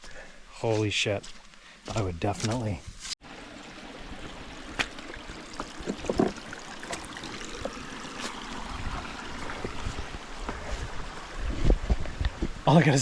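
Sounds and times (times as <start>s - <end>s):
stream trickling and gurgling: 3.2s - 13.0s.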